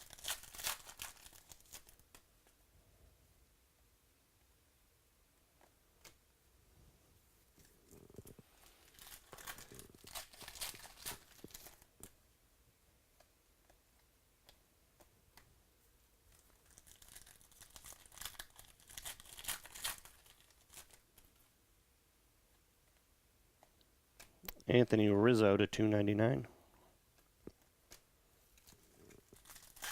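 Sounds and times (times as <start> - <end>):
foil packs tearing and crinkling: 0.0 - 2.1, 8.7 - 11.8, 16.6 - 21.0, 29.2 - 29.9.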